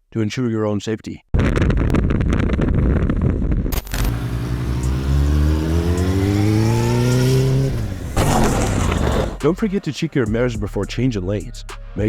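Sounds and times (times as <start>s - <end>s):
vehicle engine accelerating: 3.9s - 9.5s.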